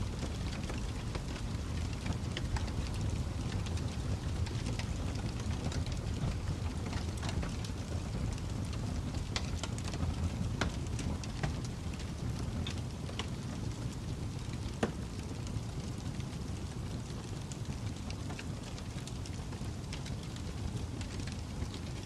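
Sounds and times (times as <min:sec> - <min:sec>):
fire crackling and popping: 0:00.0 - 0:22.0.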